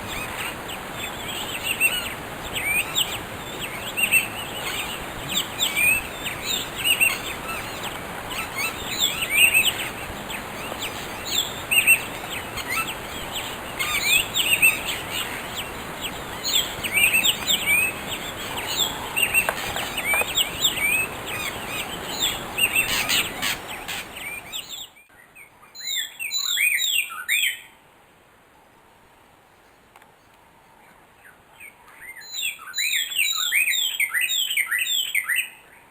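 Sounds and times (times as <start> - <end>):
birds chirping and calling: 0.0 - 25.0
steady background noise: 0.0 - 25.8.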